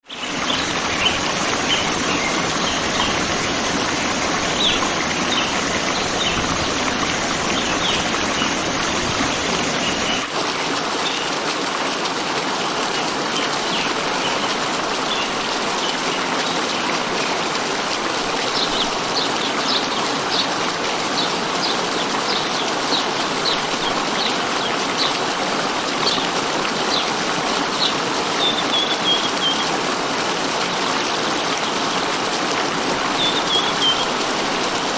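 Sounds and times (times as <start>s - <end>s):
running water rushing: 0.0s - 34.9s
small birds chirping: 0.1s - 10.3s.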